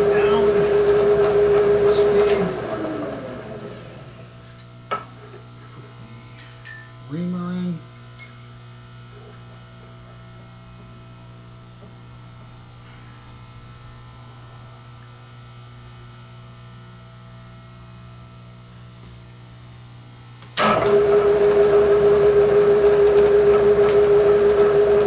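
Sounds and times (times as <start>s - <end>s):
spindle motor whining: 0.0s - 4.7s, 20.6s - 25.0s
electrical hum of machinery: 0.0s - 25.0s.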